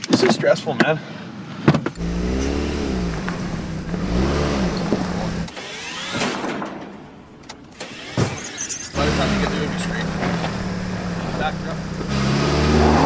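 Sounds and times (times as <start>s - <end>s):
car engine revving: 2.0s - 6.2s, 7.9s - 13.0s.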